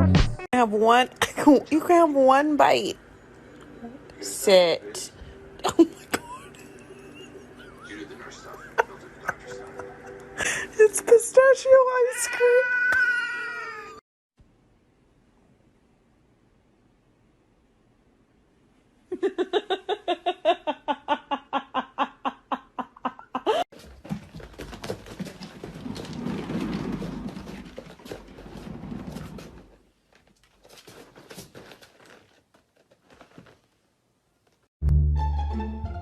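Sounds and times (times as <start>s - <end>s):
rustling: 23.8s - 34.7s.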